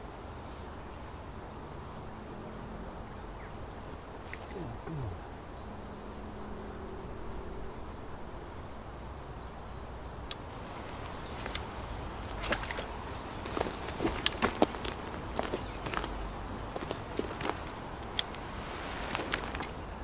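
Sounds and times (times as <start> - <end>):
outdoor hiss: 10.3 - 14.7
insect buzzing past: 10.5 - 14.6.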